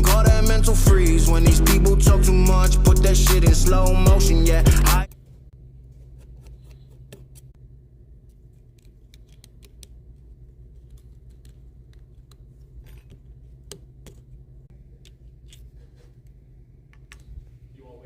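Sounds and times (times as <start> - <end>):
tools clicking and tapping: 10.8 - 16.3.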